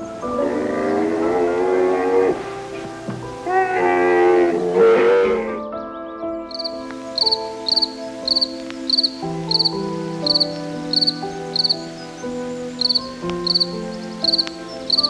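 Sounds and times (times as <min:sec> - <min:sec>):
soft background music: 0:00.0 - 0:15.0
cricket chirping: 0:06.5 - 0:15.0.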